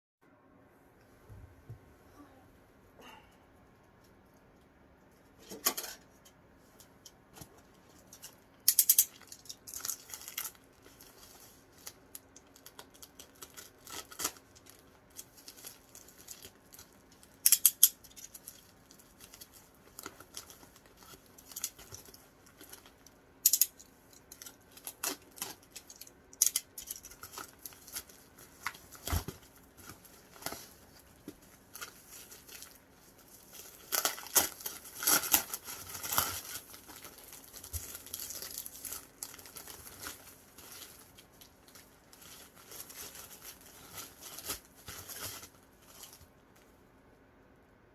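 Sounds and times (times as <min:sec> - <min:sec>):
packaging crinkling and tearing: 0:09.0 - 0:46.3.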